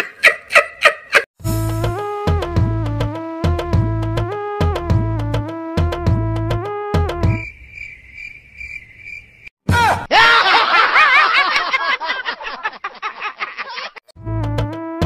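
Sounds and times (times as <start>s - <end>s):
music: 1.4s - 7.4s, 14.2s - 15.0s
crickets chirping: 7.3s - 9.5s.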